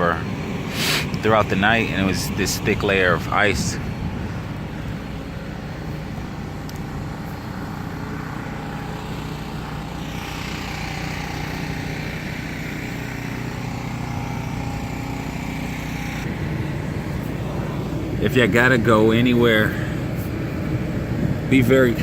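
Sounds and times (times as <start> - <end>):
motor running with low hum: 0.0 - 22.0
rushing hiss: 0.7 - 1.2.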